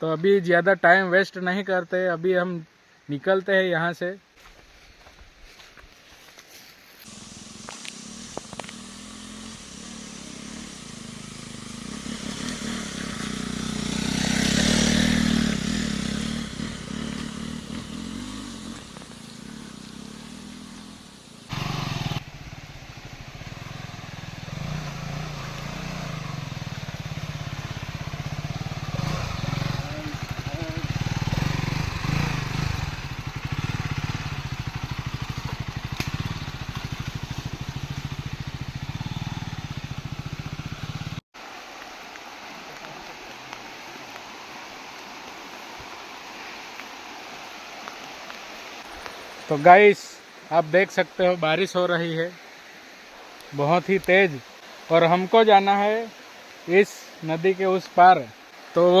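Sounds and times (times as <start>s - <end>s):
motorcycle engine running: 7.0s - 41.2s.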